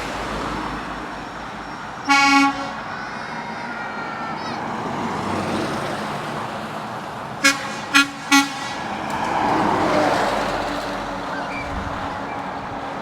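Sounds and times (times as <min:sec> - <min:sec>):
vehicle passing: 0:00.0 - 0:13.0
truck horn toots: 0:01.2 - 0:05.6, 0:07.4 - 0:10.0.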